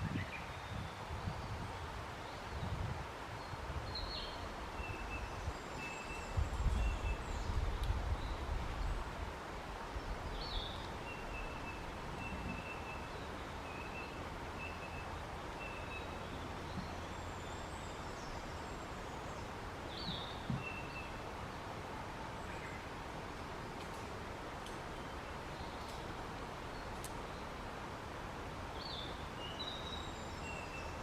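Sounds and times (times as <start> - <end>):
steady background hiss: 0.0 - 31.0
small birds calling: 9.9 - 21.6.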